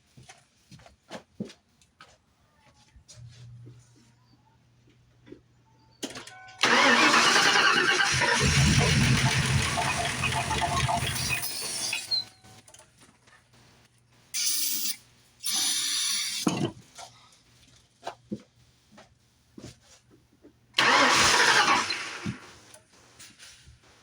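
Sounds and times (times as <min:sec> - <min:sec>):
car engine cranking: 0:06.6 - 0:12.4, 0:20.8 - 0:22.4
short hissing bursts: 0:14.4 - 0:16.4.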